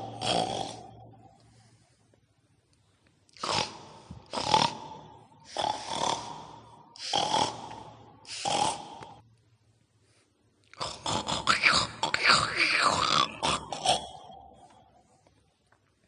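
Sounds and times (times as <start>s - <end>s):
pig-like grunts: 0.0s - 1.1s, 3.4s - 9.2s, 10.8s - 14.8s.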